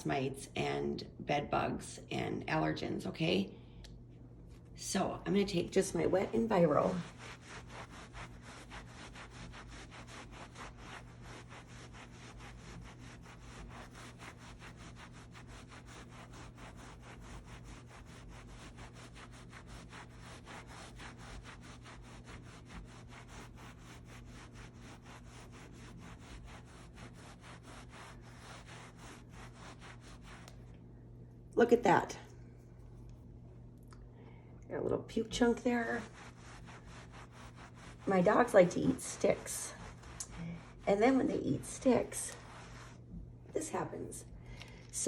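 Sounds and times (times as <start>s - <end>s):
wet cloth scrubbing: 4.8s - 30.8s, 35.1s - 43.2s.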